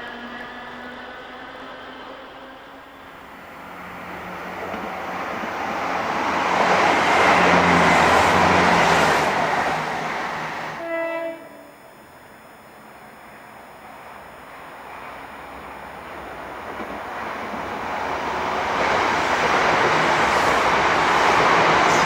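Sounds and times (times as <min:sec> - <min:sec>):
train passing on rails: 0:00.0 - 0:22.0
short train horn: 0:10.8 - 0:12.0.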